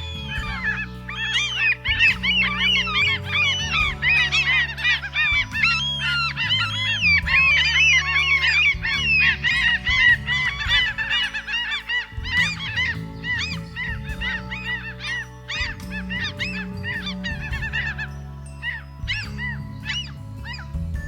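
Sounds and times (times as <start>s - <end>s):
background music with low notes: 0.0s - 21.0s
geese honking: 0.0s - 21.0s.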